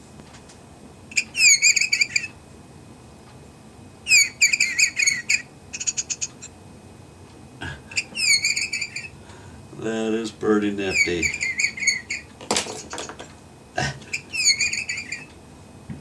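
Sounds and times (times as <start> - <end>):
electronic bird chirping: 1.1 - 2.3, 4.1 - 6.5, 7.9 - 9.1, 10.8 - 12.3, 14.1 - 15.3.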